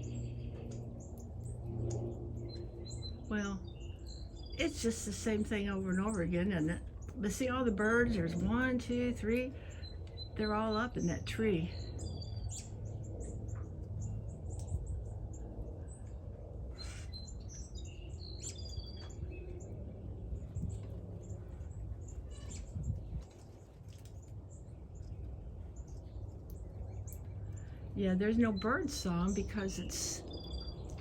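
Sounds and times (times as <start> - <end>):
low rumble: 0.0 - 31.0
bird chip calls and chirps: 16.8 - 19.7.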